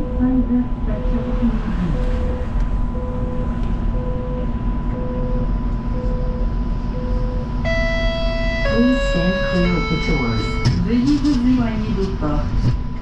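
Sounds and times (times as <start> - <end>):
steady electrical hum: 0.0 - 13.0
short beeps: 1.0 - 10.9.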